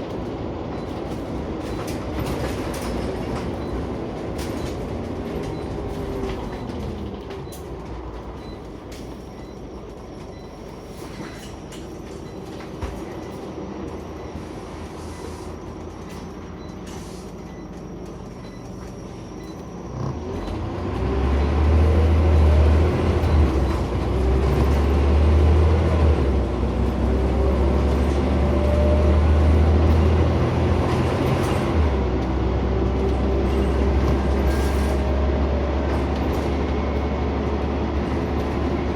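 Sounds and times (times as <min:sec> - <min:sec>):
bus engine accelerating: 0:00.0 - 0:38.9.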